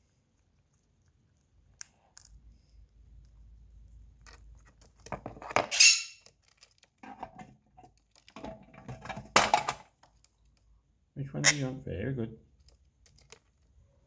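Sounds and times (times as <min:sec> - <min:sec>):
parrot handling coins and boxes: 0:01.8 - 0:10.6
short squeaky sounds: 0:05.7 - 0:06.2.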